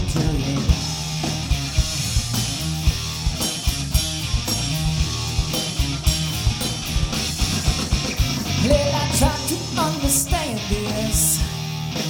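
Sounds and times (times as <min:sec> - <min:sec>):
bass guitar: 0:00.0 - 0:12.0
drum kit beat: 0:00.0 - 0:12.0
electric guitars: 0:00.0 - 0:12.0
funk rock band playing: 0:00.0 - 0:12.0.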